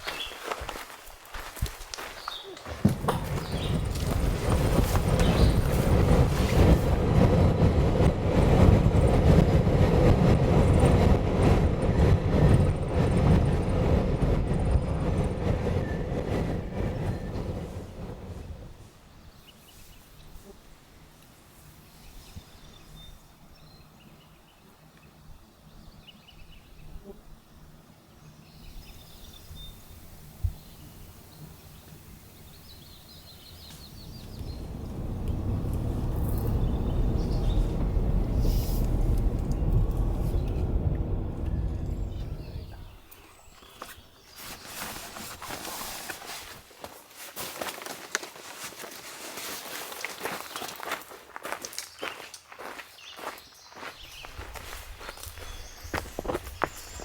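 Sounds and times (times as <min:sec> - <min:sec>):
wind buffeting microphone: 0:02.7 - 0:18.9, 0:28.9 - 0:43.5, 0:53.2 - 0:57.0
low rumble: 0:02.8 - 0:18.8, 0:33.5 - 0:43.1.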